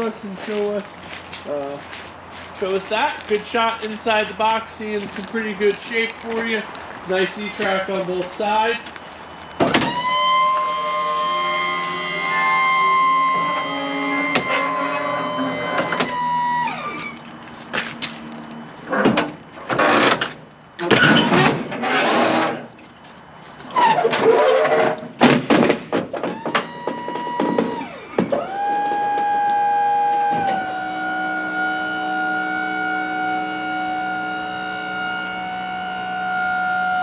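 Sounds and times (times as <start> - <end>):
hydraulic pump motor whine: 9.4 - 18.2, 26.1 - 37.0.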